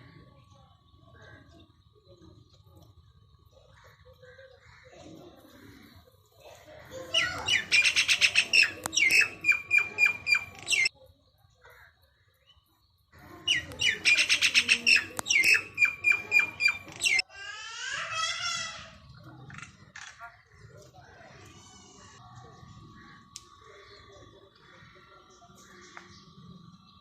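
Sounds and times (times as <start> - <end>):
myna chattering calls: 3.7 - 10.9, 13.2 - 17.2.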